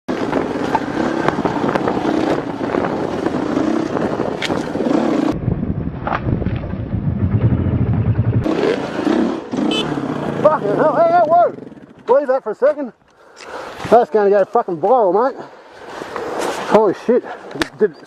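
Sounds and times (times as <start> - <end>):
dirt bike engine running: 0.1 - 12.3
rough riding noise: 0.1 - 17.7.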